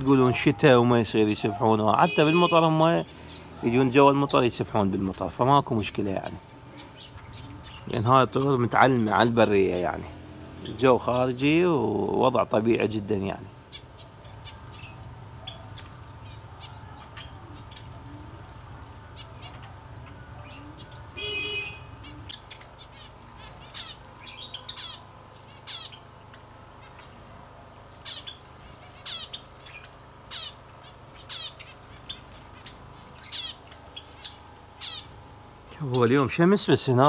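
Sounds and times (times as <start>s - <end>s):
bird squawk: 0.0s - 4.8s, 13.5s - 36.0s
small birds chirping: 0.0s - 37.0s.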